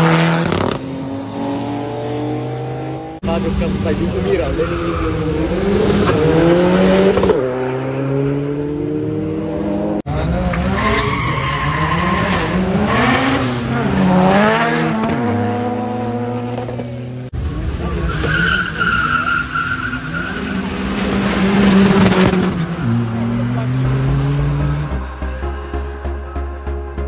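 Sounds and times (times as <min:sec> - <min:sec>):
diesel cars accelerating hard: 0:00.0 - 0:25.2.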